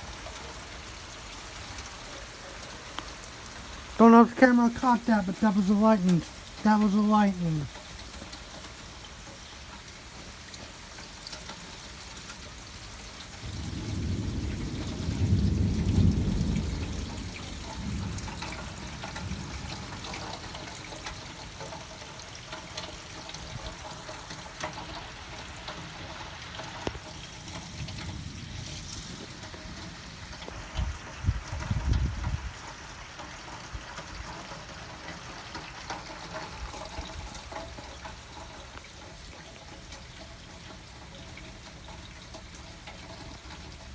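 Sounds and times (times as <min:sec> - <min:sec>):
steady rain: 0:00.0 - 0:43.9
thunder rumble: 0:13.4 - 0:20.6, 0:26.1 - 0:32.7.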